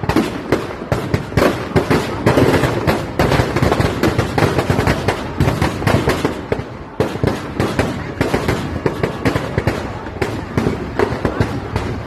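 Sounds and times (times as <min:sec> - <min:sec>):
firecrackers cracking and banging: 0:00.0 - 0:12.0.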